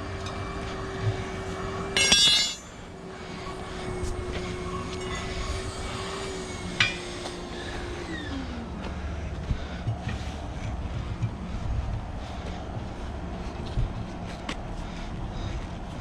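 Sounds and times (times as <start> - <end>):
light metallic clink: 2.0 - 2.8, 6.8 - 7.2
metal tool clanking on metal: 2.0 - 2.8, 6.8 - 7.3
steady hum: 2.0 - 16.0.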